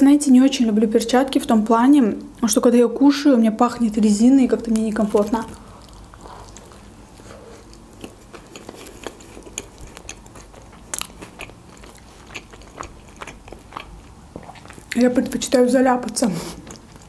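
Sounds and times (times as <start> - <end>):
person chewing a hamburger: 5.2 - 15.0, 16.5 - 17.0.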